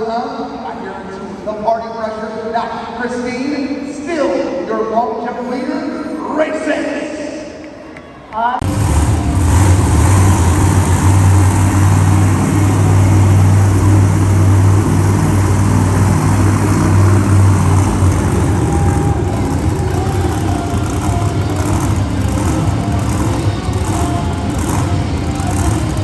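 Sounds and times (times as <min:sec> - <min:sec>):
truck engine running loud: 0:08.6 - 0:26.0.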